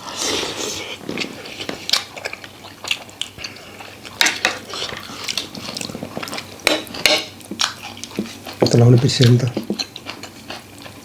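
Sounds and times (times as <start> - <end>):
spoon clinking against dishes: 6.6 - 7.4.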